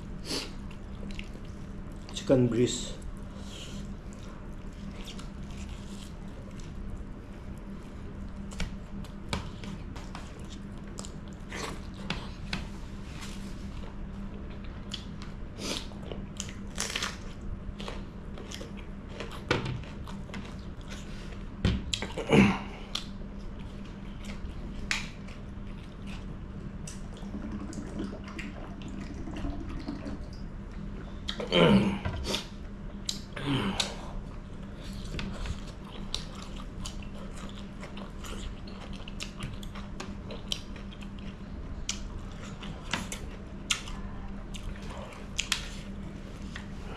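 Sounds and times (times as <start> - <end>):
wet chewing and lip-smacking: 0.6 - 2.2, 33.0 - 45.9.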